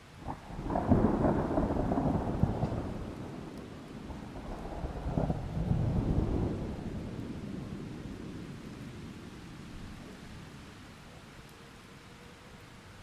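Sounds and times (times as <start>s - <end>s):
rolling thunder: 0.2s - 10.2s.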